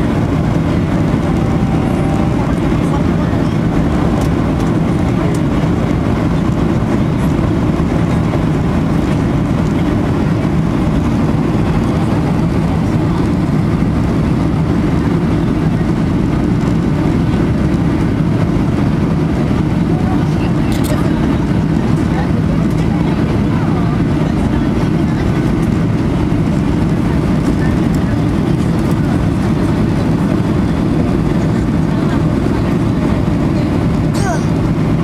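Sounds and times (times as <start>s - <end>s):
airplane engine drone: 0.0s - 35.0s.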